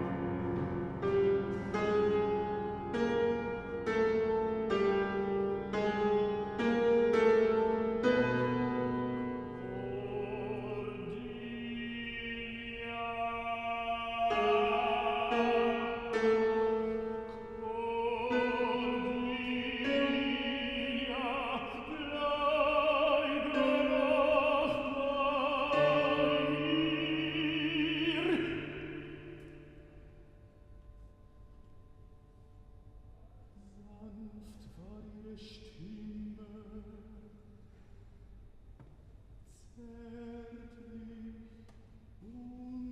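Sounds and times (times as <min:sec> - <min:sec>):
operatic singing: 0:08.8 - 0:29.9.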